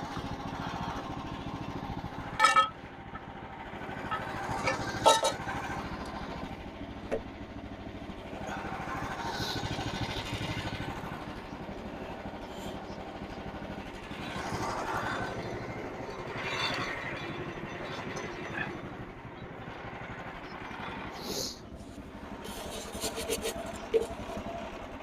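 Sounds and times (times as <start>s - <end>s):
gasoline engine running: 0.0s - 25.0s
band saw blade cutting log: 21.3s - 24.5s.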